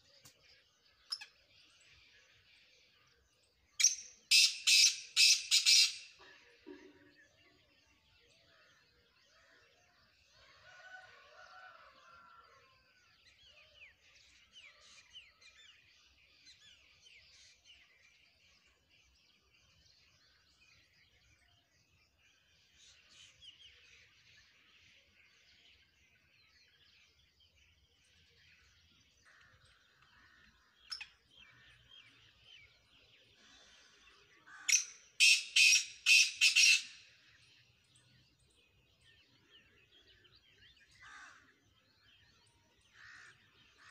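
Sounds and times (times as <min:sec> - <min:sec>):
faint birds chirping: 0:00.0 - 0:43.9
loud harsh bird call: 0:04.3 - 0:06.2, 0:34.4 - 0:37.2.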